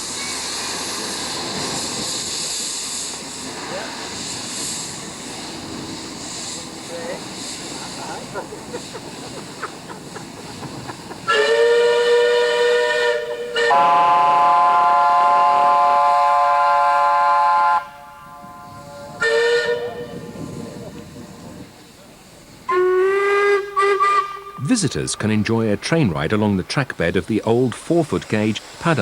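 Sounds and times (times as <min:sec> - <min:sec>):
steam hissing: 0:00.0 - 0:29.0
steam locomotive whistle blasts: 0:11.3 - 0:21.6, 0:22.7 - 0:25.0.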